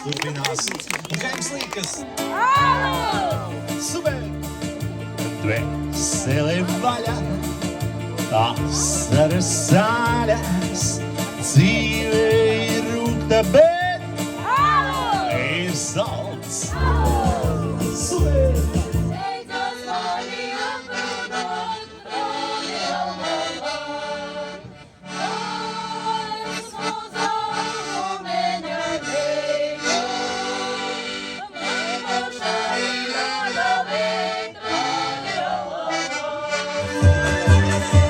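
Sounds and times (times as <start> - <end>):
instrumental folk music: 0.0 - 38.0.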